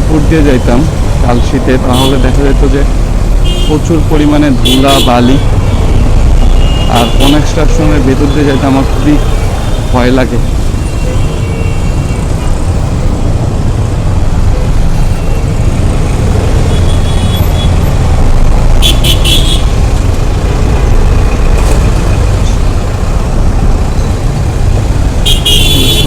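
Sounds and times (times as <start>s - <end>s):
vehicle horn beeping: 3.4s - 3.9s, 4.6s - 7.5s, 10.8s - 12.3s, 18.8s - 19.8s, 25.2s - 26.0s
wind and engine rumble: 5.4s - 26.0s.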